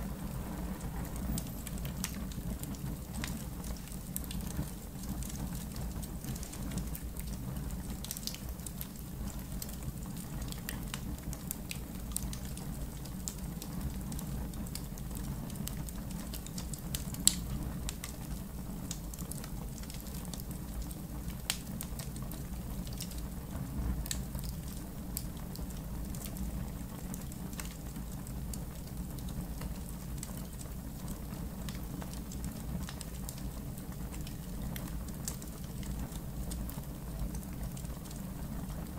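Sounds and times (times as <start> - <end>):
low steady rumble: 0.0 - 8.0
wood fire crackling: 0.0 - 38.9.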